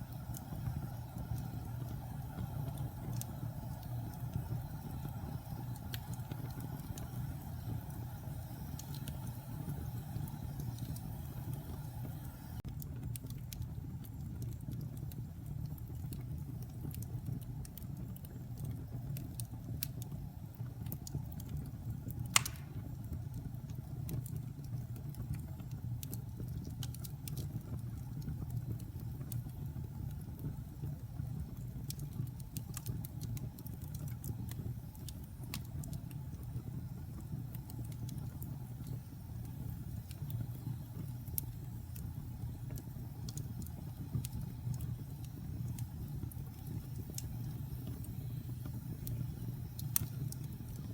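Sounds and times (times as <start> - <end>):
fire crackles: 0.0 - 50.9
fireplace fire rumbling: 0.0 - 50.9
loud fire pop: 22.3 - 22.9.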